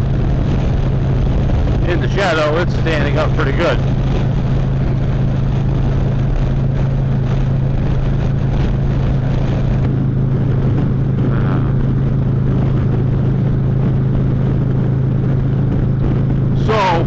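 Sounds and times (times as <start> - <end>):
motorcycle engine running: 0.0 - 17.0
road and air noise: 0.0 - 17.0.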